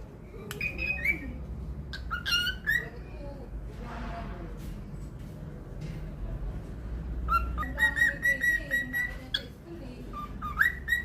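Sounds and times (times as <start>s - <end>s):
cockatiel whistling: 7.3s - 9.4s, 10.1s - 11.0s.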